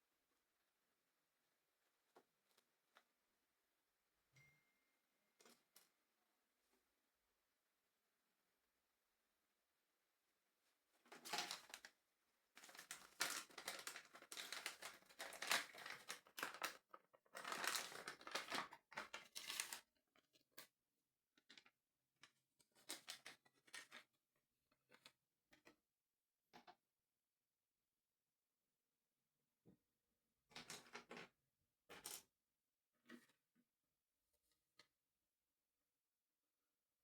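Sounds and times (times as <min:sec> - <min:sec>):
plastic bag crinkling: 0:12.6 - 0:18.7.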